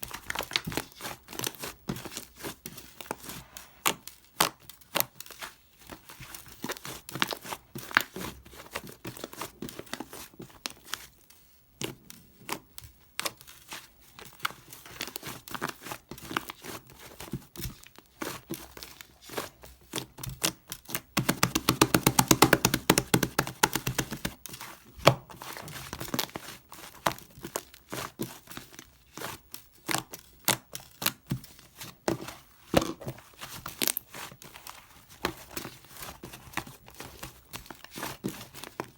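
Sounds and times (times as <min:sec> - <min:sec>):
sticky pops and crackles: 0:21.2 - 0:24.4.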